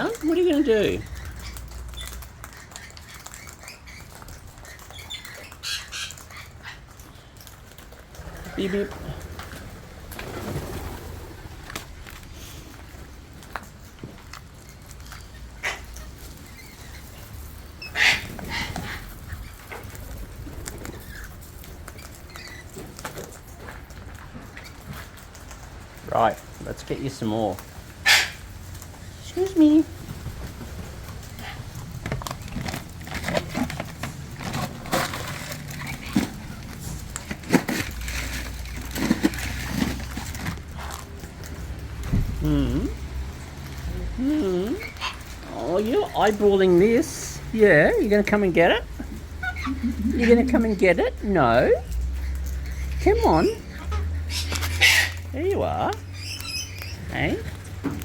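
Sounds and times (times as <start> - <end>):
small clicks and ticks: 0.8 - 8.3, 19.4 - 26.7
bird squawking: 15.4 - 19.6, 28.0 - 28.5, 48.9 - 50.8, 52.6 - 57.5
bird food bag crinkling: 29.6 - 41.7.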